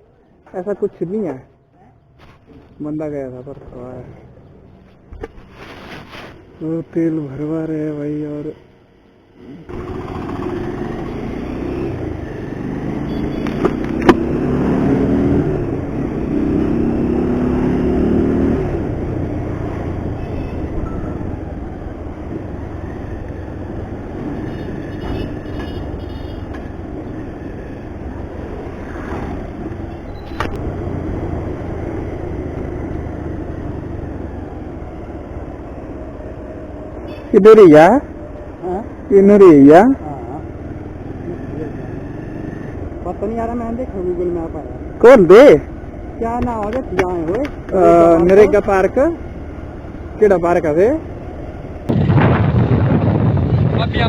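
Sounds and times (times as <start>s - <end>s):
road noise: 0.0s - 54.0s
car engine accelerating: 9.7s - 19.4s.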